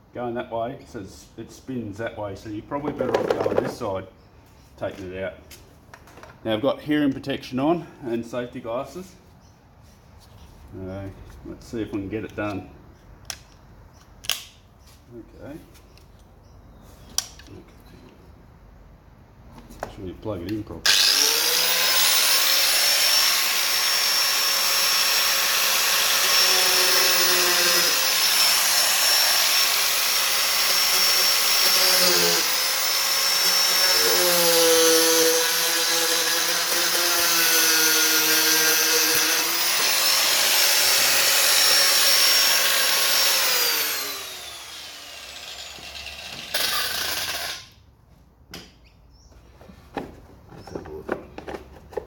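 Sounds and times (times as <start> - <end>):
electric grinder grinding metal: 20.9 - 47.7.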